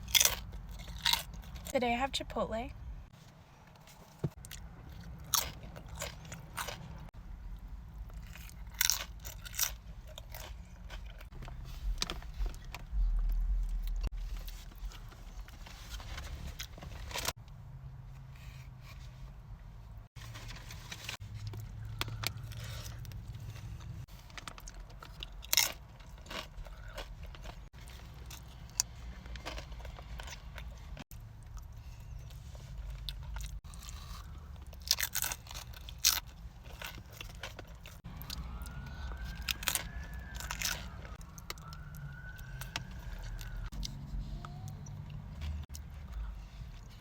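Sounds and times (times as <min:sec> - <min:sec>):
chewing with crunching bites: 0:00.0 - 0:01.7, 0:03.7 - 0:17.3, 0:20.8 - 0:47.0
steady low hum: 0:09.8 - 0:15.7
faint siren wailing: 0:21.6 - 0:23.9, 0:38.0 - 0:46.5.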